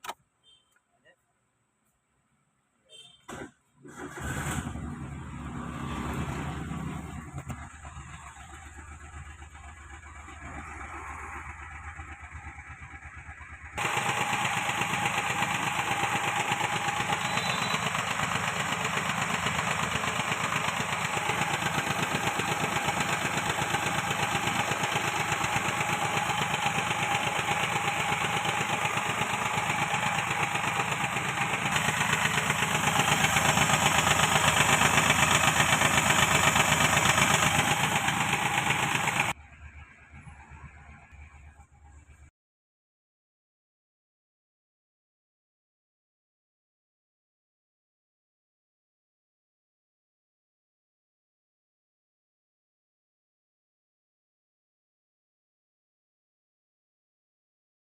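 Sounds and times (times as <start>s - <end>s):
car engine running: 4.1s - 42.0s.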